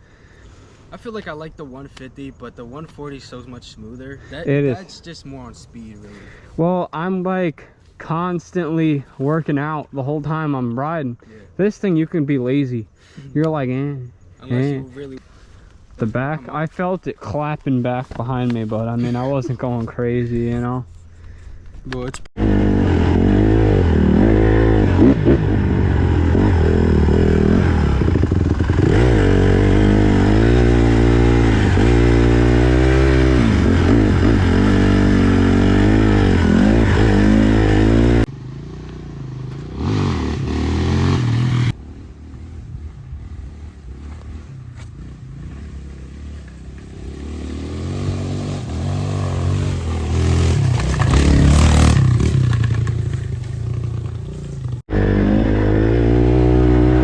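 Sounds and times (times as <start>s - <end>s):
dirt bike engine revving: 22.4s - 57.0s.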